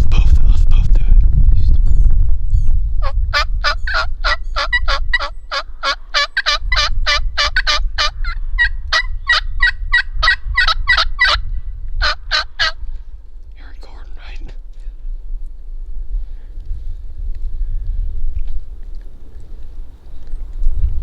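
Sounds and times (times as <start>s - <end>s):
wind rumble on microphone: 0.0s - 21.0s
turkey call yelps: 3.0s - 12.8s.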